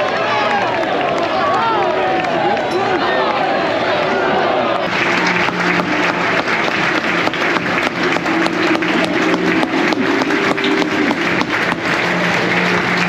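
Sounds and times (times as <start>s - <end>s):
crowd clapping: 0.0s - 4.1s, 4.7s - 13.0s.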